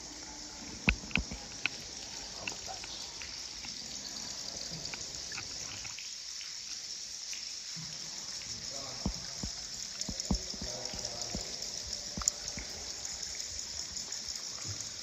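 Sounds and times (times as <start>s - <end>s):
steady high hiss: 0.0s - 15.0s
water trickling and dripping: 0.0s - 15.0s.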